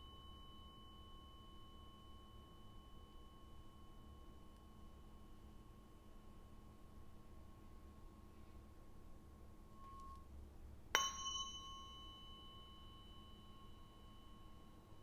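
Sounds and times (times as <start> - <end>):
tuning fork struck with click: 0.0 - 5.7, 9.7 - 10.3, 10.9 - 15.0
tuning fork ringing: 0.0 - 15.0.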